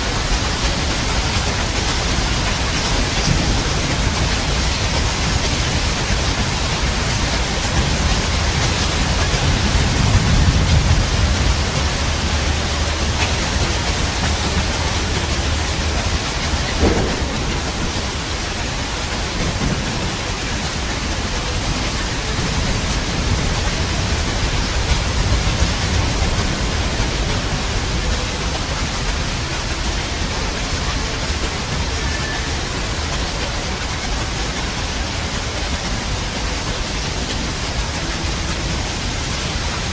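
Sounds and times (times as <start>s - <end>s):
heavy rain: 0.0s - 39.9s
thunder rumbling and cracking: 0.2s - 30.9s.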